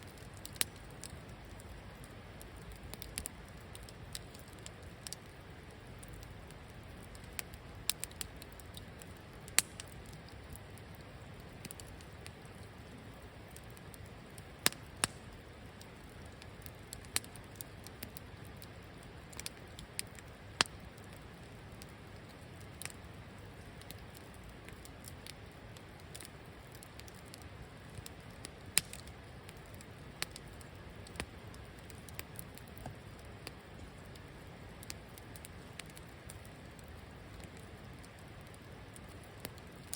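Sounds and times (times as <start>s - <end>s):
campfire crackling: 0.0s - 39.9s
sharp pops of fire: 0.1s - 5.3s, 6.0s - 10.9s, 13.6s - 15.4s, 19.3s - 21.1s, 26.0s - 34.2s.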